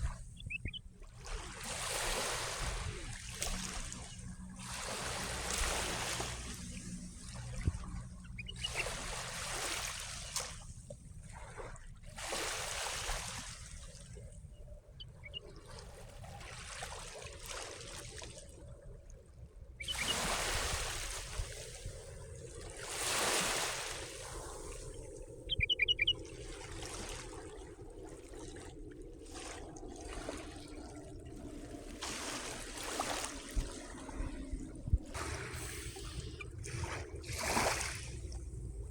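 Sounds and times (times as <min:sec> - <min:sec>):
waves lapping at shore: 0:00.0 - 0:38.9
high bird chirps: 0:00.4 - 0:00.9, 0:08.2 - 0:08.9, 0:15.0 - 0:15.5, 0:19.8 - 0:20.2, 0:25.5 - 0:26.2.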